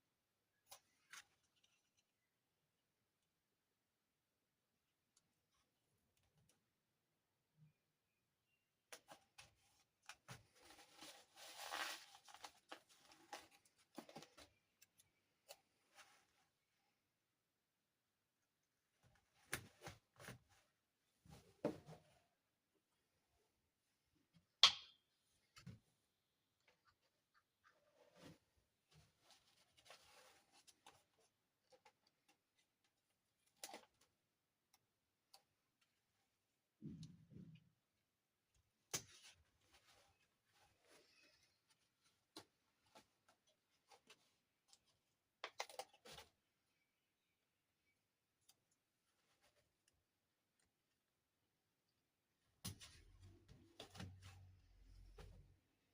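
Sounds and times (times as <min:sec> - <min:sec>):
soft rustle: 0:09.6 - 0:14.7, 0:27.6 - 0:32.0
packaging rustle: 0:10.5 - 0:14.4.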